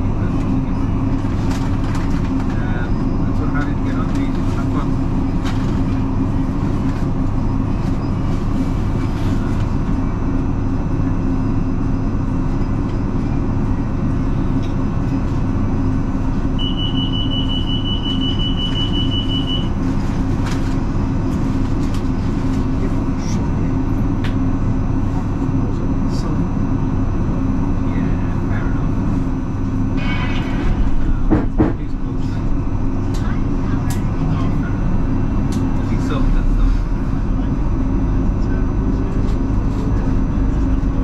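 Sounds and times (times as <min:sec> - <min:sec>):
train wheels rumbling on rails: 0:30.2 - 0:41.0.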